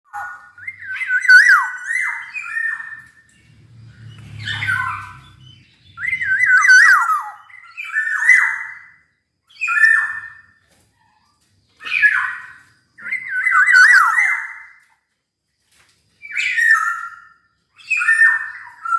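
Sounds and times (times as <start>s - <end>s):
oriole singing fluty whistles: 0.1s - 3.2s, 4.1s - 10.5s.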